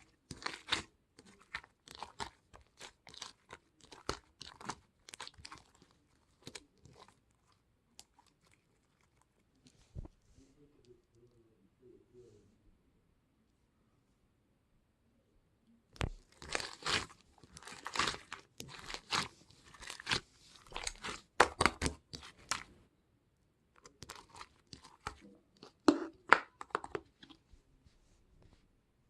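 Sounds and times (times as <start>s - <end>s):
rustling and crinkling: 0.0s - 11.0s, 16.0s - 22.8s, 23.8s - 28.7s.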